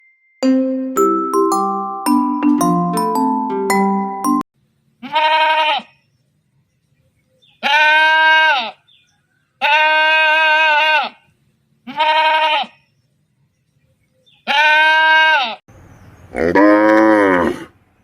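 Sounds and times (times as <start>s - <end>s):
long wavering bleats: 5.0s - 6.0s, 7.6s - 8.8s, 9.6s - 12.8s, 14.4s - 15.6s, 16.3s - 17.7s.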